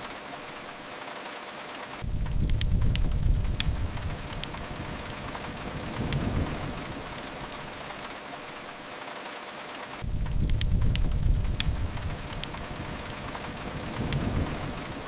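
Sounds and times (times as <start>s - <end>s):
rain on a window: 0.0s - 15.0s
wood fire popping and crackling: 0.0s - 15.0s
low rumbles: 2.0s - 7.9s, 10.0s - 15.0s.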